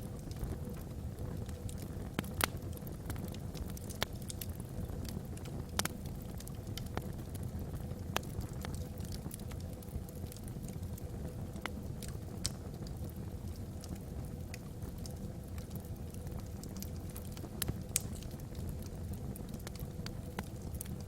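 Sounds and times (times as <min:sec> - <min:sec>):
low steady rumble: 0:00.0 - 0:21.0
wood fire crackling and popping: 0:00.0 - 0:21.0.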